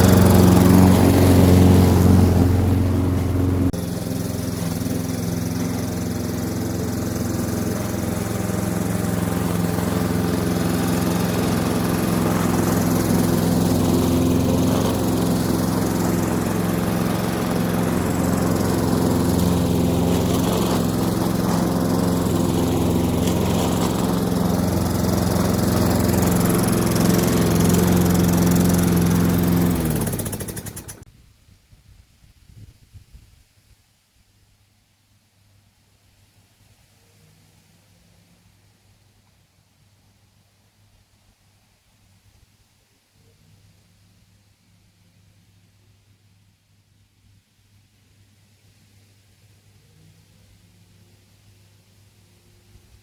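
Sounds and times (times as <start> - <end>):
lawn mower engine running: 0.0 - 31.0.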